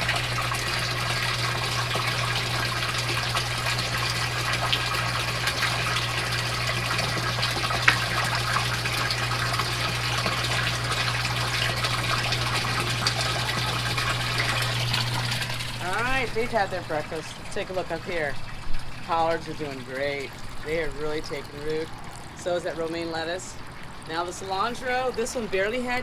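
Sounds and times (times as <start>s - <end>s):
water pouring and splashing: 0.0s - 26.0s
water pump hum: 0.0s - 26.0s.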